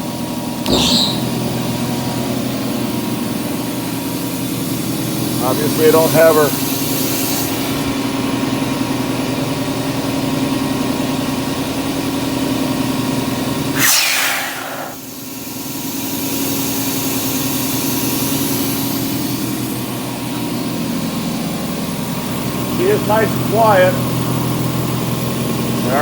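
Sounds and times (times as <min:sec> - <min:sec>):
short hiss: 0:13.8 - 0:15.2.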